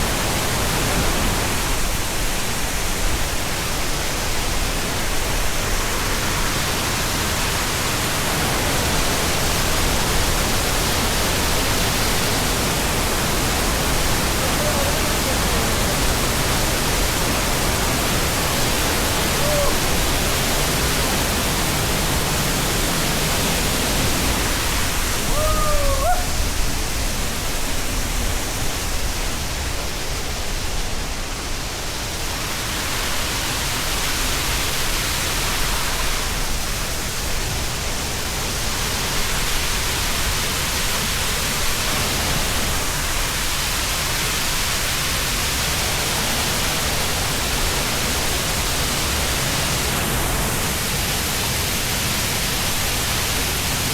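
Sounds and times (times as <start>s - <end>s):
waterfall roaring: 0.0s - 53.9s
short pitched call: 19.3s - 19.9s, 25.2s - 26.4s.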